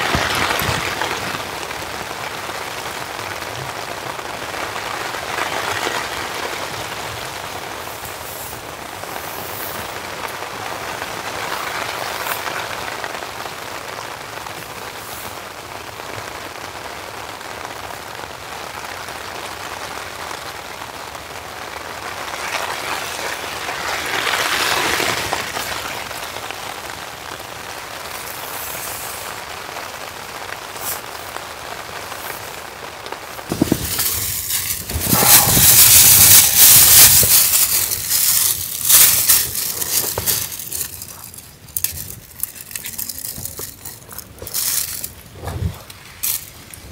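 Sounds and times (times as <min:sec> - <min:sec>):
light rain falling: 0:00.0 - 0:46.9
loud burst of noise: 0:33.5 - 0:41.0.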